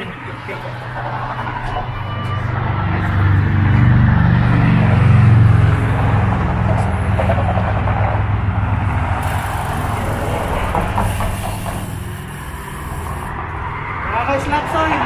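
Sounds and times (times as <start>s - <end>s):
steady road noise: 0.0s - 15.0s
vehicle engine running: 2.9s - 13.8s.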